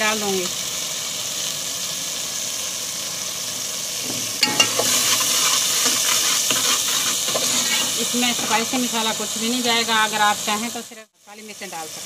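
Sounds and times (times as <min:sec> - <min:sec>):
onions sizzling in oil: 0:00.0 - 0:12.0
metal spatula scraping pot: 0:04.1 - 0:08.8.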